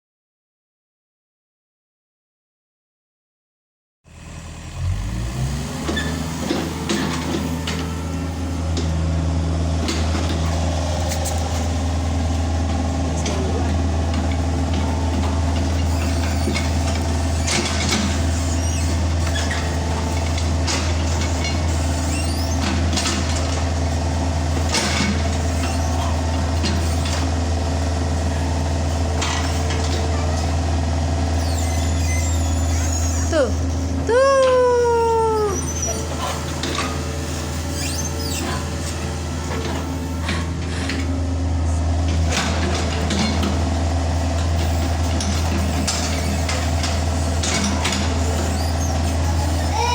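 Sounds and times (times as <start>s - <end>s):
diesel engine starting and droning: 4.1s - 49.9s.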